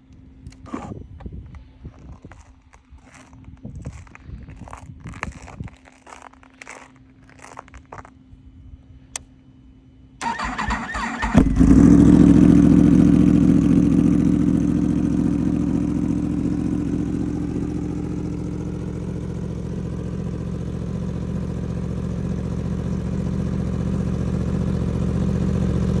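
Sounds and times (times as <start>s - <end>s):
motorcycle engine idling: 10.2s - 26.0s.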